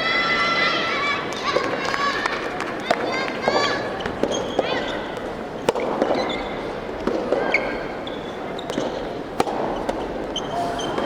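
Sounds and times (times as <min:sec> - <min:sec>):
rackets striking ball: 0:02.8 - 0:11.0
shoe squeaks on court floor: 0:04.0 - 0:05.1, 0:06.2 - 0:06.6, 0:07.5 - 0:09.0, 0:09.7 - 0:11.0.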